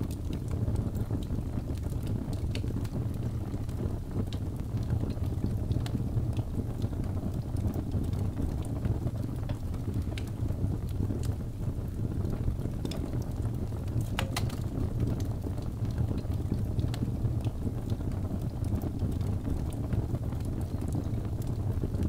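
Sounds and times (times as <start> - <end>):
fire crackling and popping: 0.0 - 22.0
fire rumbling: 0.0 - 22.0.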